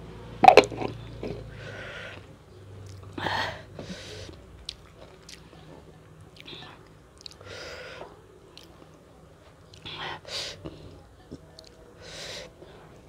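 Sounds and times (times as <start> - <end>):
person chewing and biting food: 4.6 - 5.4.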